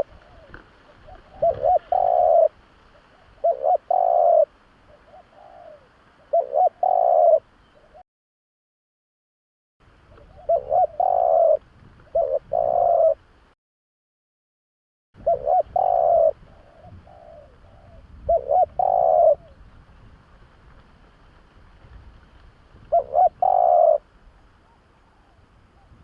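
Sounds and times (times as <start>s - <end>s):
dove cooing: 0.0s - 8.0s, 10.1s - 13.2s, 15.2s - 19.6s, 22.8s - 26.0s.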